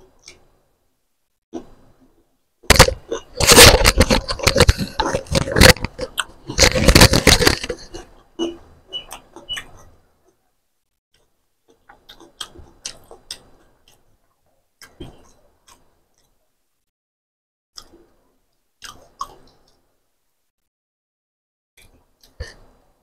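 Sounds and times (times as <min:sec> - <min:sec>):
person chewing: 0:02.6 - 0:10.5, 0:11.2 - 0:16.6, 0:17.8 - 0:19.9.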